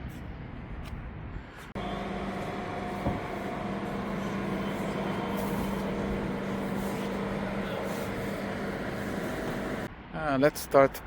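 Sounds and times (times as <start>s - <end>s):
steady mechanical hum: 1.3s - 9.9s.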